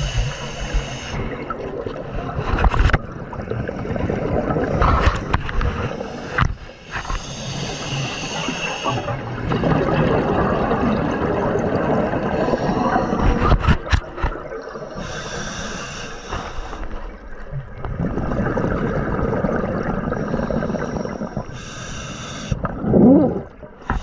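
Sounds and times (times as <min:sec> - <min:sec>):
regulator inhalation hiss: 0:00.0 - 0:01.3, 0:06.8 - 0:09.1, 0:15.0 - 0:16.9, 0:20.2 - 0:22.6
bubbling underwater exhalations: 0:03.1 - 0:05.4, 0:08.8 - 0:15.1, 0:17.9 - 0:21.6, 0:22.6 - 0:24.0.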